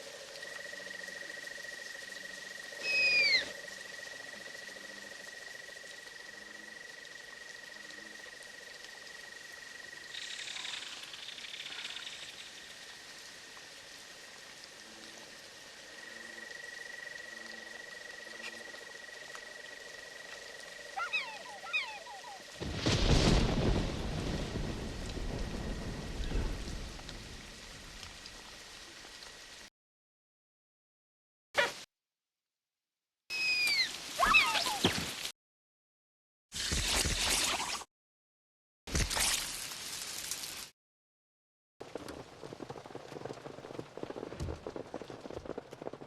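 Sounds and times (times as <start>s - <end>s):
frogs croaking: 0.0s - 22.6s
rain: 0.0s - 29.7s, 33.3s - 35.3s, 38.9s - 40.8s, 41.8s - 46.0s
thunder rumble: 22.6s - 28.4s, 41.8s - 46.0s.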